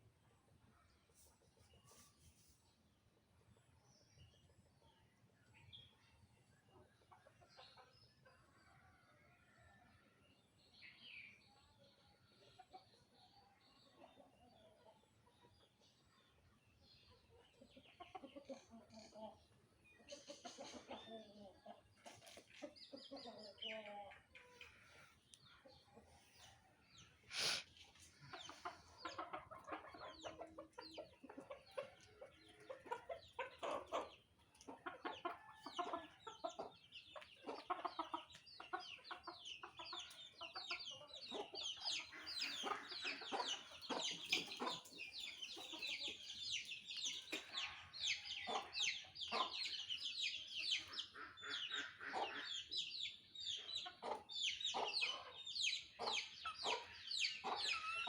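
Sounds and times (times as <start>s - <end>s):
fowl clucking: 27.3s - 46.2s, 47.3s - 49.8s, 50.7s - 52.9s.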